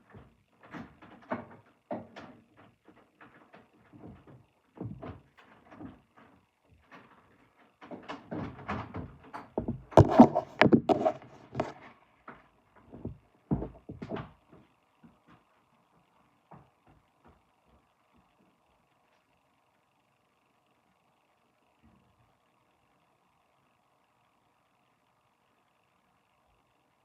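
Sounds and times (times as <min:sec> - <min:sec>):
knocks and clatters of handling: 0:00.0 - 0:17.9.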